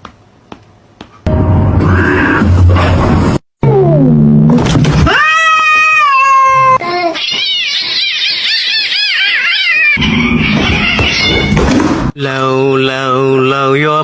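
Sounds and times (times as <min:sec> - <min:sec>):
cat yowling: 0:05.1 - 0:11.6.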